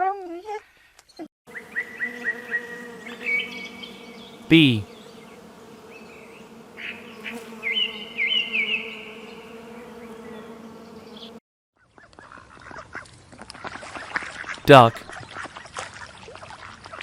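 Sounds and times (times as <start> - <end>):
bees buzzing: 1.5 - 11.4.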